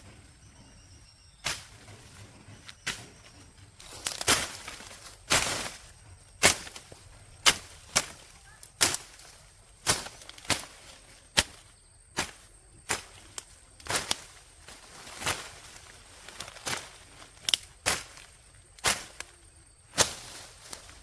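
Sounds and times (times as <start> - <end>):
hand tool chopping: 2.8 - 5.8, 6.4 - 14.4, 16.5 - 19.3.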